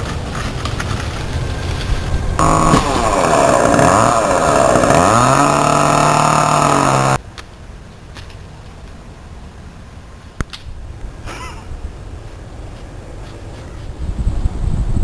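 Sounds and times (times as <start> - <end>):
chainsaw cutting branches: 0.0 - 7.2.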